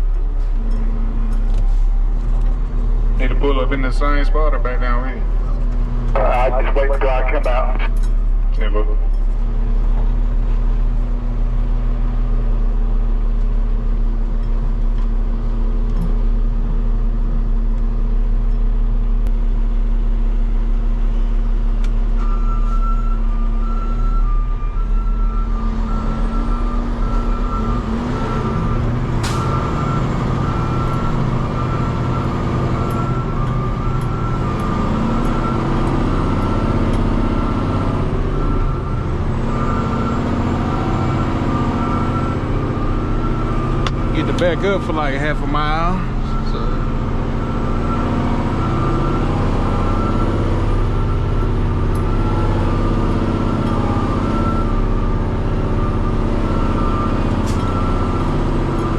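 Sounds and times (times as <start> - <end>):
diesel truck engine idling: 0.0 - 58.9
reversing alarm beeping: 22.2 - 58.9
sharp click: 29.2 - 29.8, 57.5 - 57.8.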